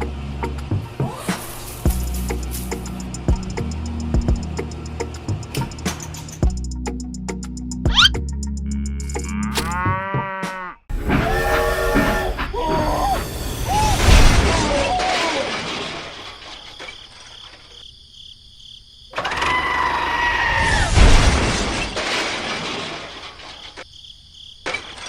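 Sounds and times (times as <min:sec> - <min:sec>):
short wavering pitched calls: 0:07.9 - 0:08.2
loud shattering crashes: 0:12.6 - 0:17.2, 0:20.6 - 0:23.8.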